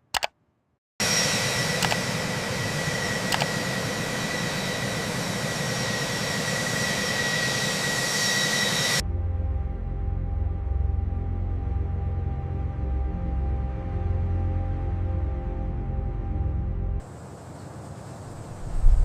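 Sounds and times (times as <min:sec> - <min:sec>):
jet engine roaring: 0:01.0 - 0:09.0, 0:17.0 - 0:19.0.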